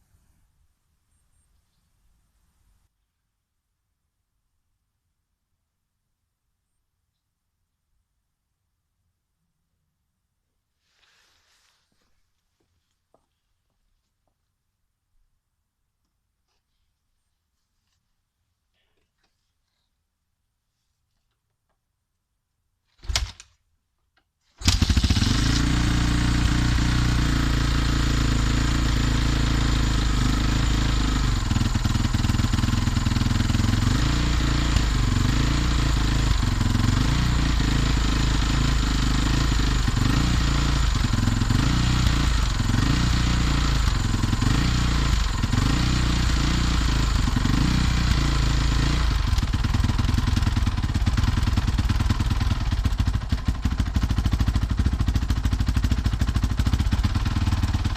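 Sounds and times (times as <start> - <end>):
dirt bike engine starting and idling: 22.9 - 23.6, 24.5 - 57.9.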